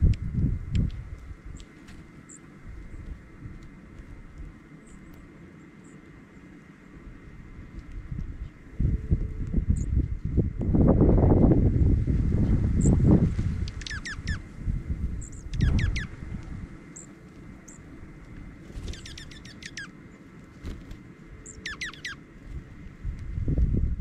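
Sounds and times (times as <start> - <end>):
wind rumble on microphone: 0.0 - 5.4, 6.8 - 19.5, 22.3 - 24.0
songbirds chirping: 1.1 - 10.1, 13.6 - 23.0.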